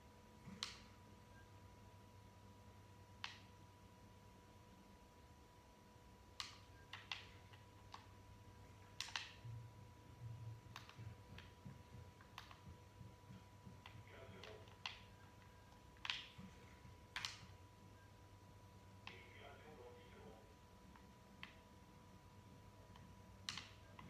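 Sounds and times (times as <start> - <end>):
faint electrical hum: 0.0 - 24.0
sharp clicks: 8.8 - 9.5, 10.5 - 17.6, 22.9 - 24.0
soft low thumps: 9.4 - 14.2.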